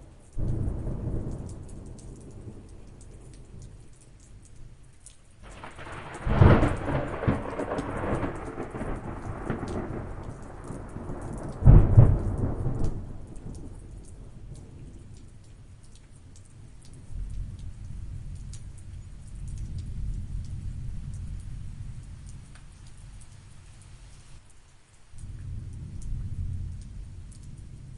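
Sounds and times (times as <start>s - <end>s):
low rolling thunder: 0.0s - 4.0s, 5.4s - 15.7s, 16.6s - 23.6s, 25.2s - 27.9s
light rain: 0.0s - 27.9s
thunderclaps: 0.4s - 3.9s, 5.4s - 15.3s, 25.2s - 27.9s.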